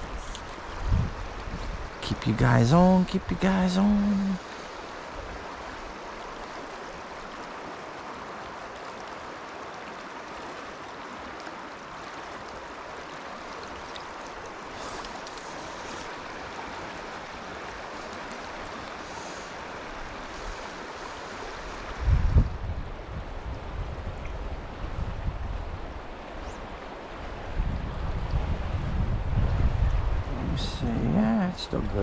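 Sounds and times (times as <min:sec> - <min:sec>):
low rumble on microphone: 0:00.0 - 0:03.4, 0:21.6 - 0:31.5
river water rushing over rocks: 0:00.0 - 0:30.3.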